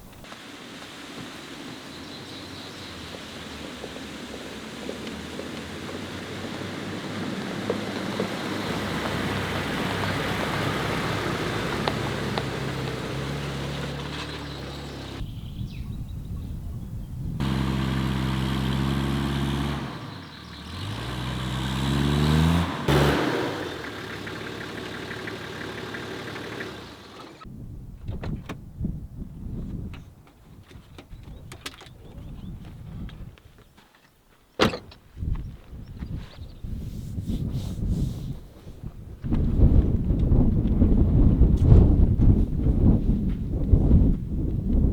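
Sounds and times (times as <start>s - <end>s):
road and wind noise: 0.0s - 44.9s
engine revving up: 3.2s - 15.2s, 17.4s - 27.5s.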